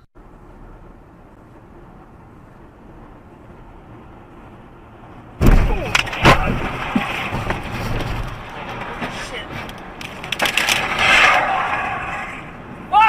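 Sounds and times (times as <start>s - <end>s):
road noise: 0.0s - 13.0s
vehicles crashing: 3.6s - 13.0s
debris clattering: 5.4s - 12.7s
sharp impacts: 5.4s - 13.0s.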